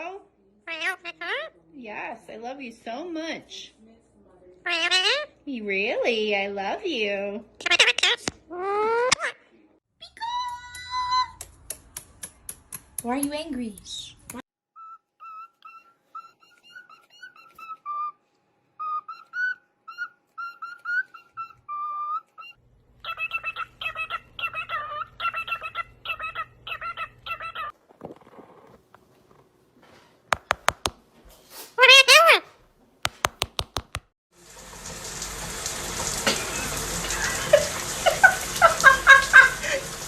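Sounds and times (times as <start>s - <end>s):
parrot whistling a tune: 14.8s - 18.2s, 18.8s - 27.7s.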